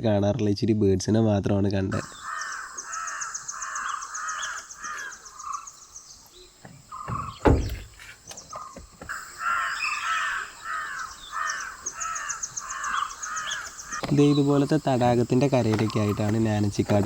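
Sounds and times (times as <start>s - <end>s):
birds calling harshly: 1.9s - 17.0s
loud thump: 7.1s - 8.0s.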